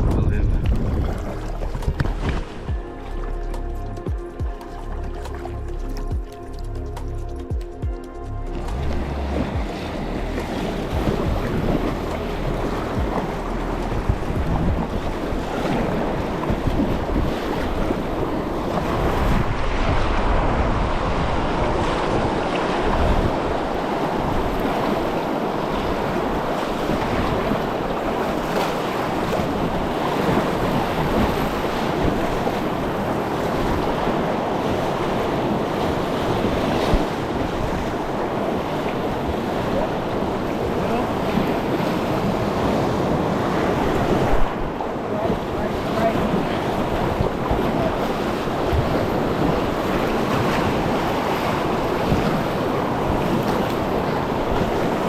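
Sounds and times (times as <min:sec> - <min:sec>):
wind buffeting microphone: 0:00.0 - 0:03.0, 0:08.6 - 0:55.0
river water rushing through rapids: 0:08.5 - 0:55.0.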